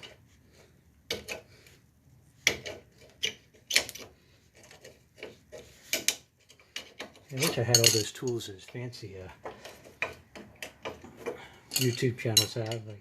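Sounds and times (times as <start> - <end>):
metal tools clinking on brake hardware: 7.2 - 8.8, 11.6 - 12.9.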